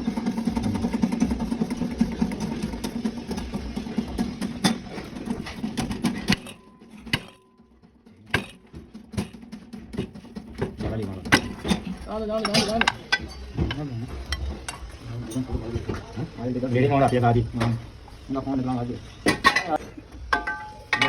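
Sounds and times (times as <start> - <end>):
machine humming with pulsing rhythm: 0.0 - 16.8.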